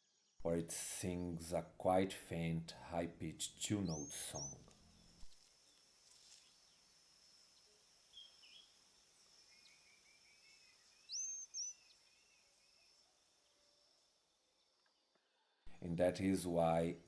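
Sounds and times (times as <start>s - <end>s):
high insect hum: 4.3s - 15.1s
faint high chirps: 6.1s - 15.2s.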